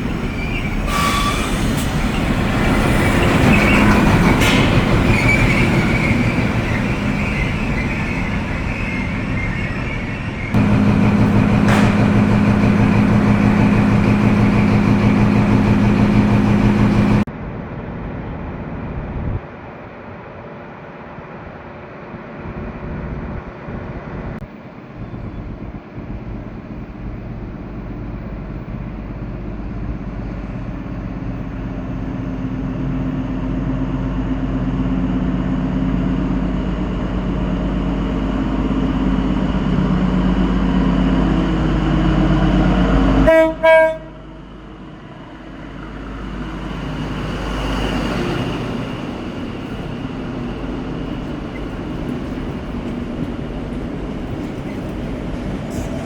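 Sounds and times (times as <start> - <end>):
diesel train engine humming: 0.0 - 17.3, 24.0 - 56.0
rushing train noise: 0.0 - 56.0
train horn blast: 10.6 - 17.2, 43.2 - 44.5.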